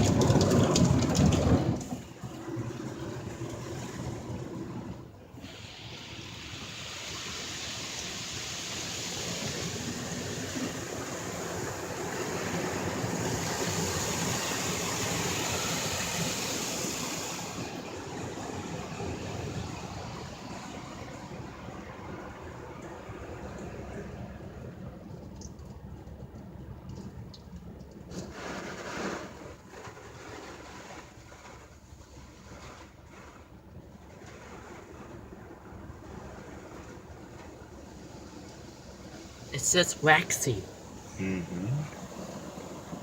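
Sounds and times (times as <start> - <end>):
car wash spray jets hissing: 1.7 - 21.4, 34.3 - 43.0.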